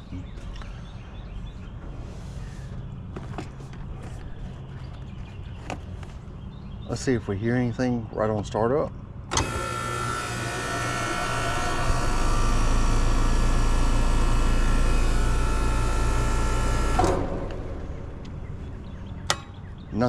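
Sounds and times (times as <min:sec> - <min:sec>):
air conditioner fan and compressor hum: 0:00.0 - 0:20.0.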